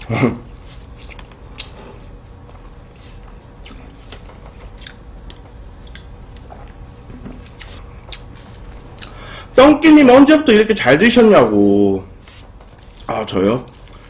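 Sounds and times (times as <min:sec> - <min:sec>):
wet mouth sounds: 0:00.8 - 0:06.8, 0:07.4 - 0:09.2
crisp pastry crackles: 0:12.2 - 0:14.0.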